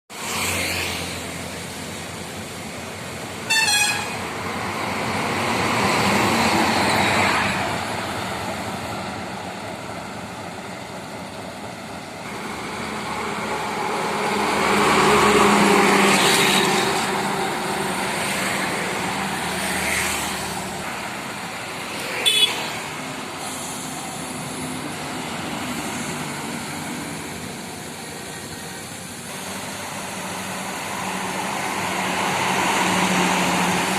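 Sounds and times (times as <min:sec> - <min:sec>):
heavy trucks passing: 0:00.1 - 0:33.9
short horn toots: 0:03.5 - 0:04.2.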